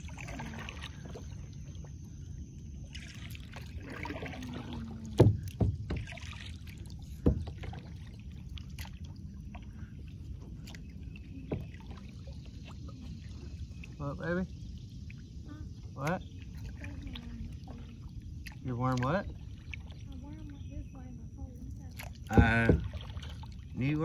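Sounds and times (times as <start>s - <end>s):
knocks on kayak hull: 5.1s - 6.2s, 7.2s - 7.6s, 22.3s - 23.1s.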